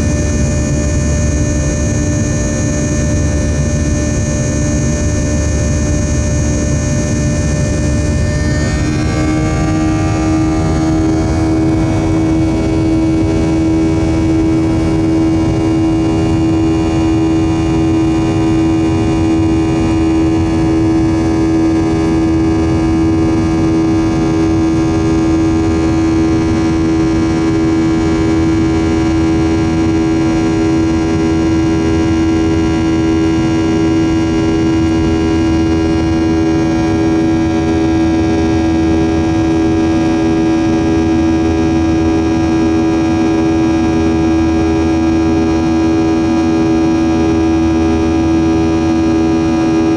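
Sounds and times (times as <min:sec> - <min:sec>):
jet engine drone in cabin: 0:00.0 - 0:49.9.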